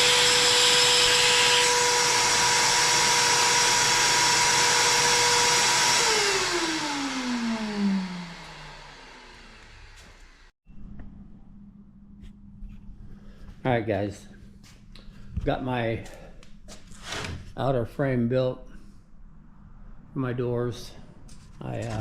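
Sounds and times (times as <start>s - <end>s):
power tool motor whining: 0.0s - 10.5s.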